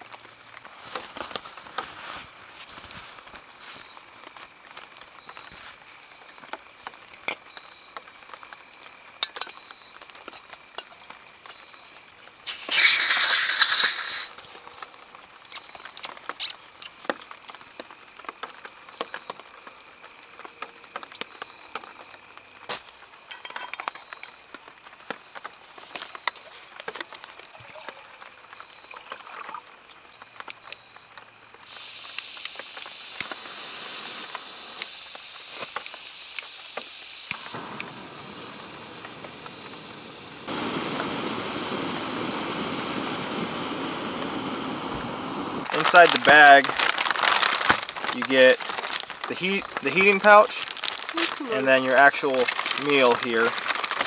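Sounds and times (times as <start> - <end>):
rain pattering on a tarp: 0.0 - 13.1, 14.3 - 23.3, 23.9 - 33.4, 45.6 - 54.0
steady high hiss: 3.4 - 27.5, 30.0 - 54.0
short loud burst of noise: 12.5 - 14.3.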